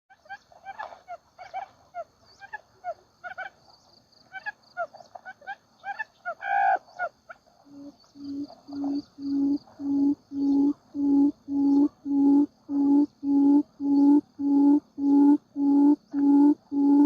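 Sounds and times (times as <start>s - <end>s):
quail chirping: 0.1s - 3.6s, 4.3s - 17.0s
low hooting notes: 7.7s - 17.0s.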